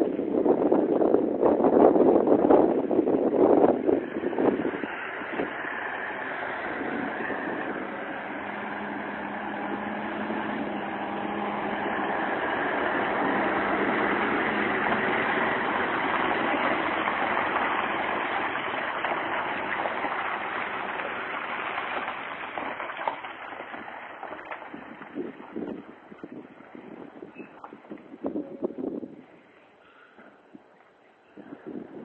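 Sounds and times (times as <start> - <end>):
diesel truck engine running: 2.2 - 29.2.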